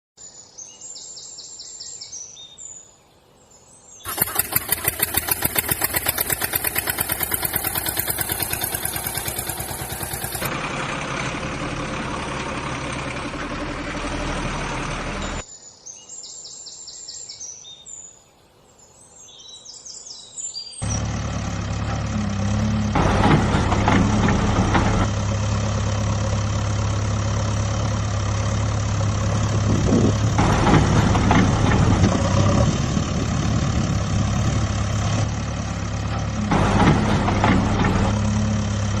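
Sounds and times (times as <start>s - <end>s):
birds chirping: 0.2s - 10.5s, 15.0s - 23.0s
truck engine running: 4.1s - 15.4s, 20.8s - 39.0s.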